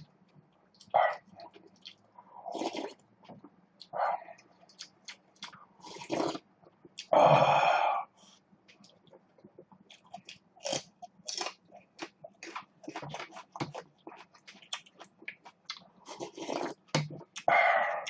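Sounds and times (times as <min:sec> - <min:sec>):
chewing crisp food: 0:00.7 - 0:02.0, 0:03.8 - 0:06.4, 0:08.7 - 0:17.5.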